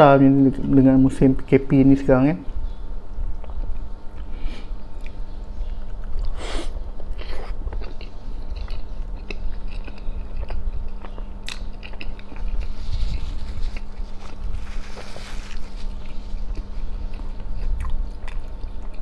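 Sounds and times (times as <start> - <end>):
faint steady hum: 0.0 - 19.0
chewing and biting sandwich: 7.0 - 19.0
mouth smacks and clicks: 7.3 - 13.9.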